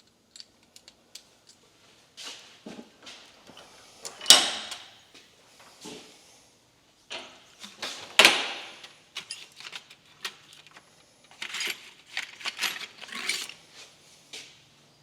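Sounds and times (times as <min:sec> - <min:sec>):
metal tools clinking: 0:07.6 - 0:13.6.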